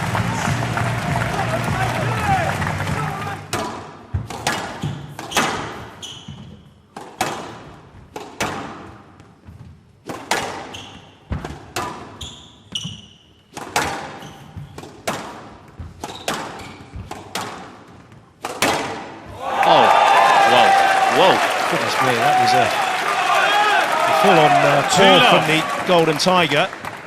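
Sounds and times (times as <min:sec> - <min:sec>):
squash ball hitting rackets and walls: 0:02.9 - 0:19.4
shoes squeaking on court floor: 0:04.1 - 0:06.9, 0:10.6 - 0:15.0, 0:15.6 - 0:18.3.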